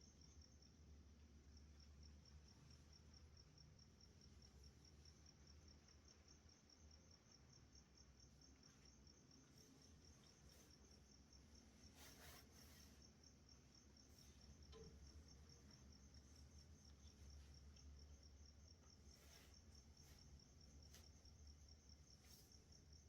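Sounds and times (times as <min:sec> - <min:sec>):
night insects chirping: 0:00.0 - 0:23.0
faint rustle: 0:07.9 - 0:23.0.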